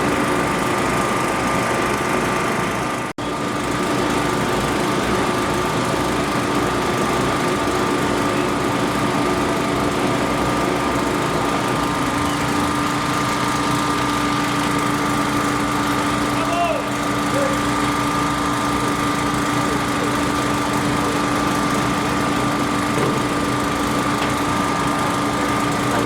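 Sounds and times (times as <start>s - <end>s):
machine engine humming: 0.0s - 26.0s.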